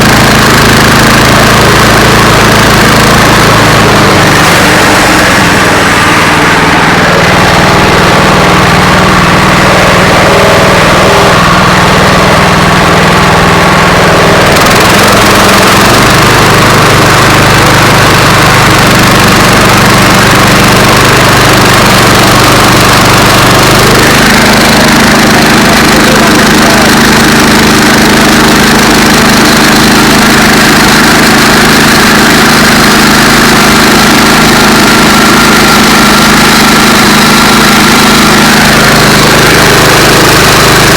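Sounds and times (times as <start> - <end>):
bandsaw mill engine cutting log: 0.0 - 40.9.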